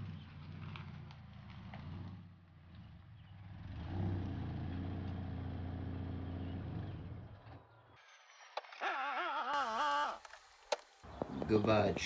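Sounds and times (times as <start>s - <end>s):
car engine running at low revs: 0.0s - 7.4s.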